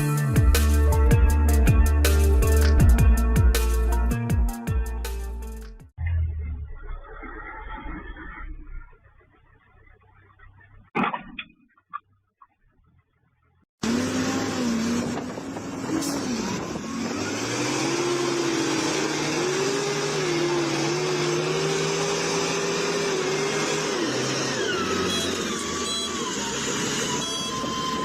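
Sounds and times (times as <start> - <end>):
vehicle engine revving: 13.8 - 28.0.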